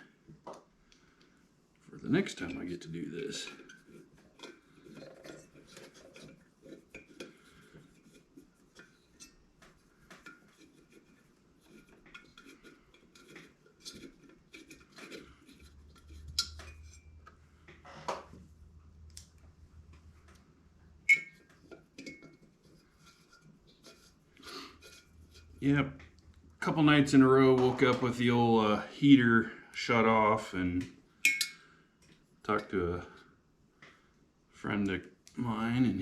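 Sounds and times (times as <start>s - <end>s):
metal clinks and taps from tools: 21.1s - 22.4s, 31.2s - 31.7s
ringing metal clink: 31.2s - 31.6s.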